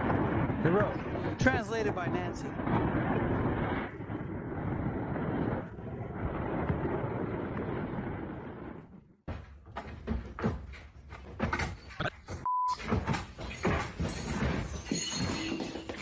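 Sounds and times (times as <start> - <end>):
steady rushing noise: 0.0 - 9.0
knocks bangs and clatter: 9.2 - 16.0
short beep: 12.5 - 12.8.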